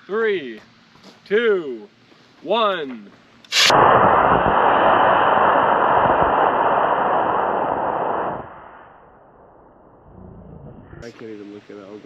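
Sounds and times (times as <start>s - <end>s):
rocket motor ignition pop: 3.5s - 4.7s
rocket motor rushing hiss: 3.5s - 9.8s.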